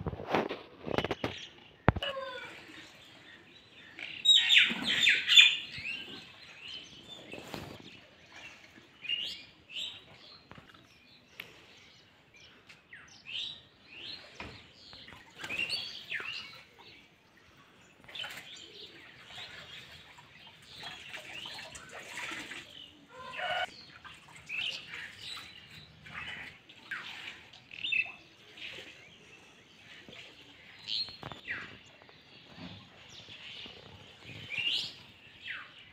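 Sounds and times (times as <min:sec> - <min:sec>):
birds chirping and whistling: 0:04.0 - 0:07.9, 0:30.8 - 0:35.8.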